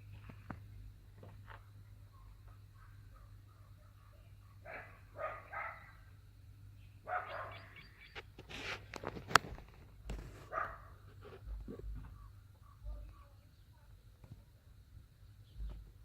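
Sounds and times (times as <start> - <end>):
dog barking: 2.5 - 6.1, 7.0 - 7.8, 10.5 - 11.0.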